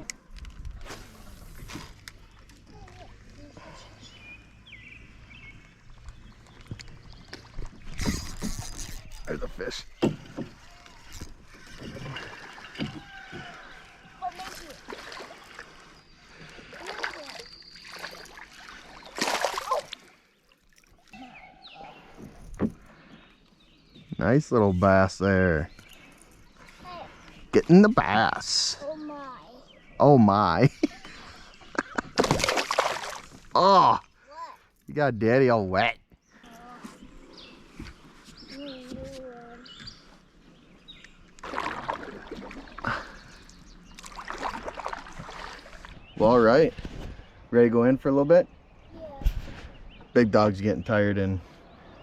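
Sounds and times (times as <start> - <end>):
water splashing beside canoe: 5.2 - 23.6, 31.0 - 34.2, 40.0 - 47.4.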